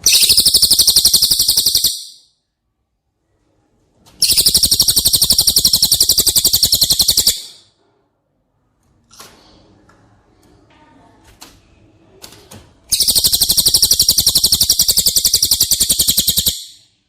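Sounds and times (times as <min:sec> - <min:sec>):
bird high-pitched trill: 0:00.0 - 0:02.3, 0:04.2 - 0:07.6, 0:12.9 - 0:16.9.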